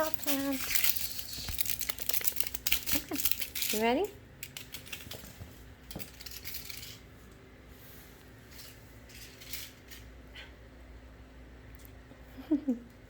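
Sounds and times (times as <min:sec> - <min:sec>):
toy ball rattling on hard floor: 0:00.0 - 0:07.1.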